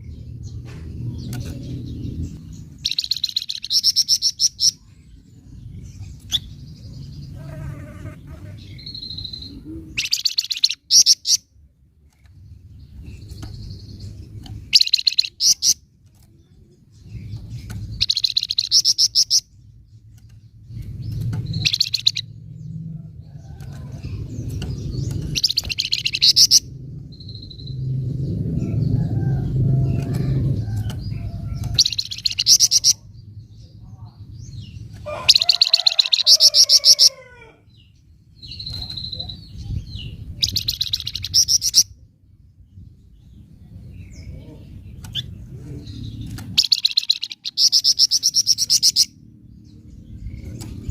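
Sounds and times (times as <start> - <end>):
bird chatter: 0.0 - 22.4, 23.2 - 27.8, 28.6 - 37.2, 38.4 - 41.9, 43.4 - 50.9
low background rumble: 0.0 - 50.9.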